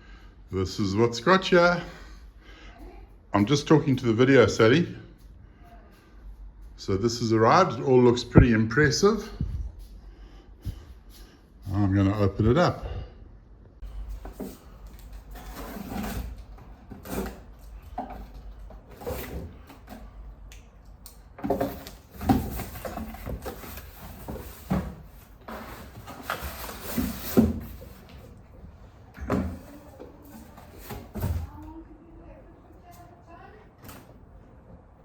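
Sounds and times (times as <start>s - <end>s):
box sliding scrapes: 13.9s - 20.0s, 21.5s - 28.4s.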